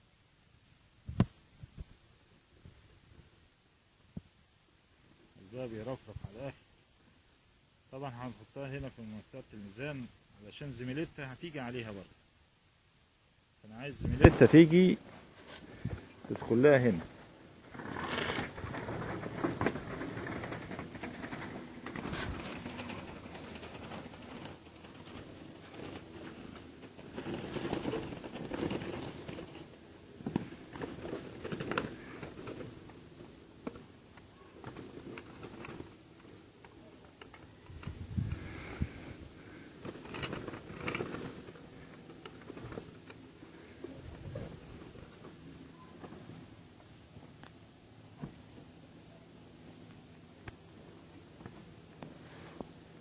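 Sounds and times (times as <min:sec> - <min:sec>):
wings rustling: 0:13.9 - 0:46.6.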